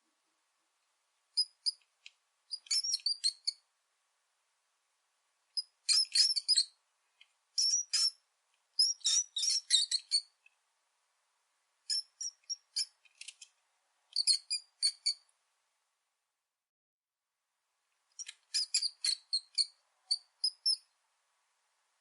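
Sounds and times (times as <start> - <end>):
rat squeaking: 1.4 - 1.8, 2.5 - 3.6, 5.6 - 6.8, 7.6 - 8.2, 8.8 - 10.4, 11.9 - 13.4, 14.1 - 15.3, 18.2 - 20.9.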